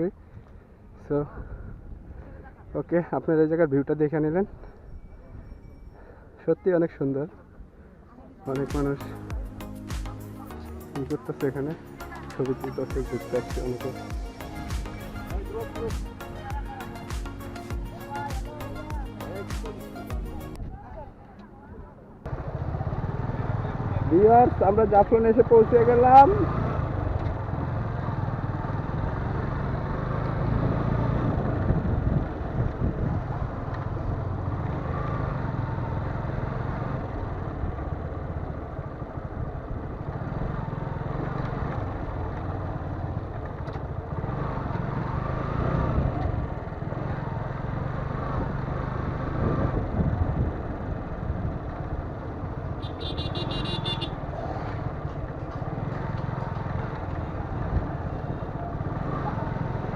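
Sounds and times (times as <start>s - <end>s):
road and wind noise: 0.0s - 59.9s
motorcycle engine rumble: 7.3s - 59.9s.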